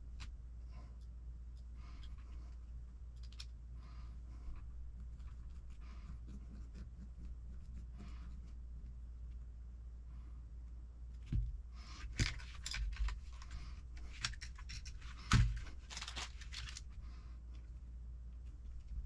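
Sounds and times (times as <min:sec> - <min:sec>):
steady low hum: 0:00.0 - 0:19.0
rustling and scraping: 0:11.2 - 0:19.0.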